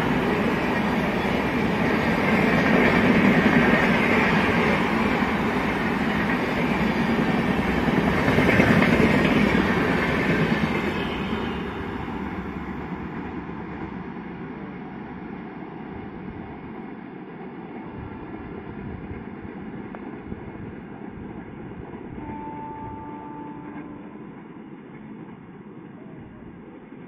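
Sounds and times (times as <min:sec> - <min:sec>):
train rumble and wheel noise: 0:00.0 - 0:27.0.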